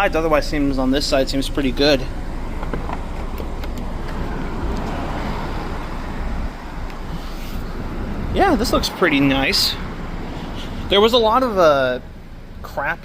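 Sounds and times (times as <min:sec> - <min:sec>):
road traffic rumble: 0:00.0 - 0:13.0
vehicle passing by: 0:01.9 - 0:12.2.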